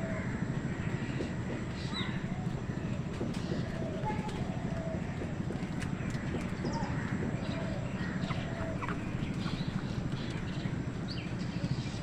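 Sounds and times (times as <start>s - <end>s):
crows calling: 0.0s - 10.5s
low background rumble: 0.0s - 12.0s
small birds chirping: 0.0s - 12.0s.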